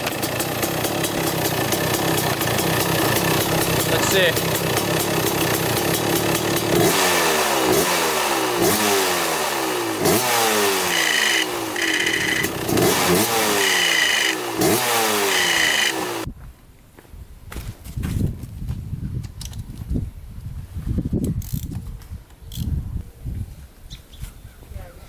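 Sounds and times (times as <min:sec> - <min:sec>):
two-stroke engine revving: 0:00.0 - 0:16.3
high scraping squeal: 0:11.2 - 0:12.5.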